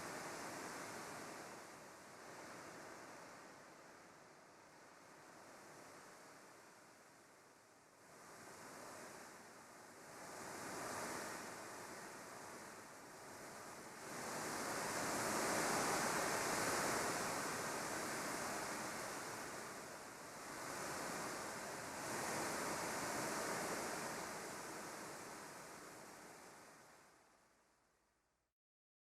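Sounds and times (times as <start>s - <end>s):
wind: 0.0s - 27.6s
rushing water: 13.8s - 27.0s.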